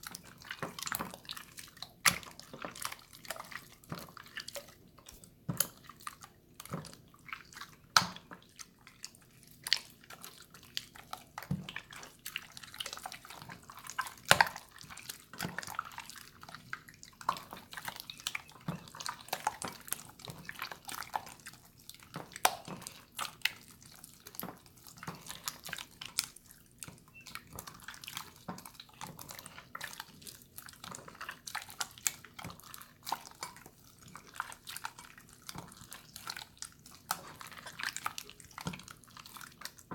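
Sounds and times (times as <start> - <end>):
slime squelching and popping: 0.0 - 39.9.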